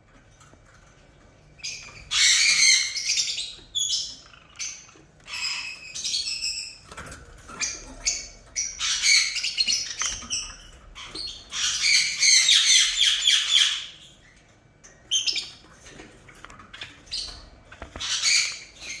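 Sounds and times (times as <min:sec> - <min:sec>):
parrots squawking: 0:01.6 - 0:06.8, 0:07.4 - 0:14.1, 0:16.8 - 0:19.0.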